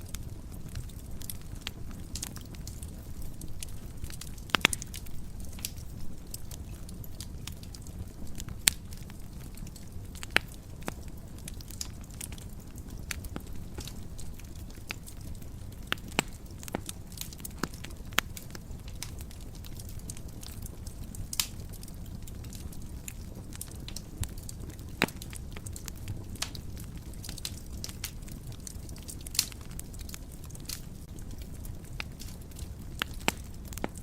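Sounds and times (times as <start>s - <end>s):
fire crackles and pops: 0.0s - 34.0s
fire rumbling in fireplace: 0.0s - 34.0s.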